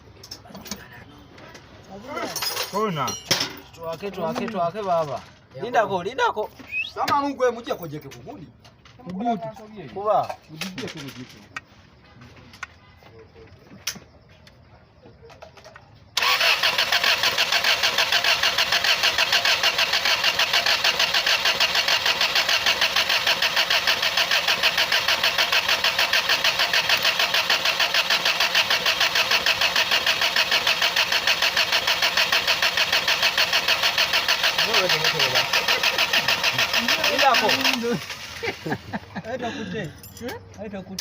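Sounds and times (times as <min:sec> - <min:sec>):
engine cranking on starter motor: 0:16.2 - 0:39.3.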